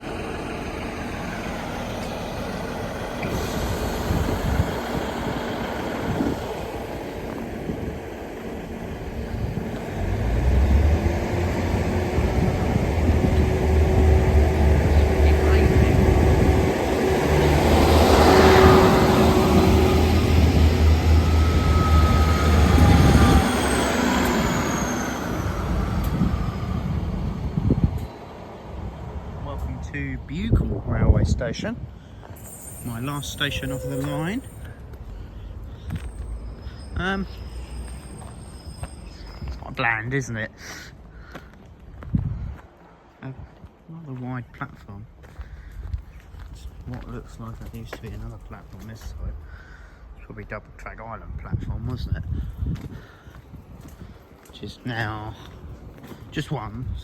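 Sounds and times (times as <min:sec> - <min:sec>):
train engine rumble: 0:00.0 - 0:57.0
faint high whine: 0:32.3 - 0:34.8.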